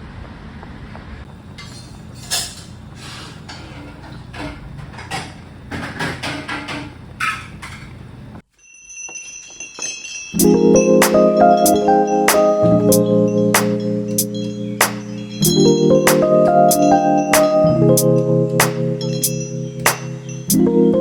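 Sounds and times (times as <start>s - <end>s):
tableware clinking: 1.6s - 8.0s, 8.7s - 12.3s
music with mallet notes: 10.1s - 21.0s.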